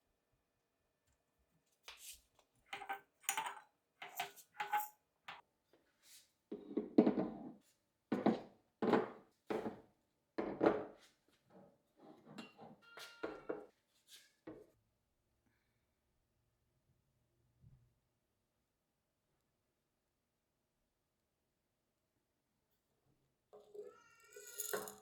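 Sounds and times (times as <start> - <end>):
kitchenware clicks and clinks: 2.8 - 4.9, 23.6 - 25.0.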